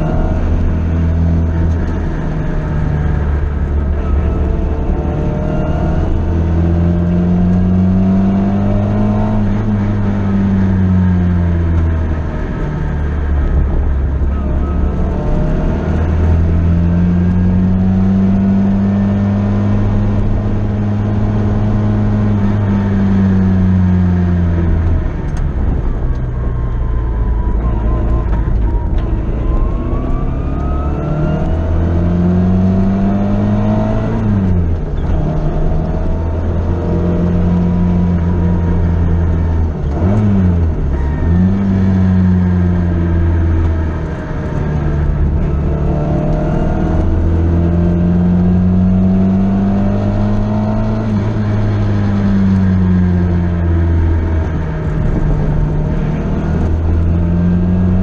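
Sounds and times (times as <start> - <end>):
sports car engine at high revs: 0.0 - 58.0.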